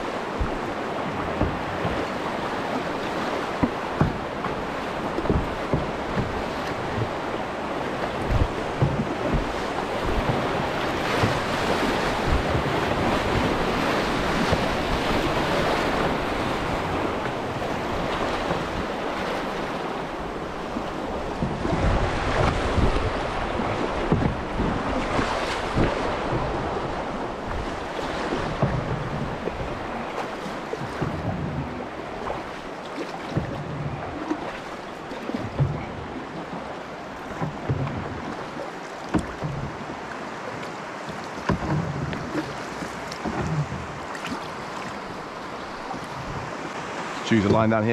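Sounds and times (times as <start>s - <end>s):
wind buffeting microphone: 0.0s - 32.6s, 41.6s - 47.9s
river water rushing through rapids: 0.0s - 33.4s.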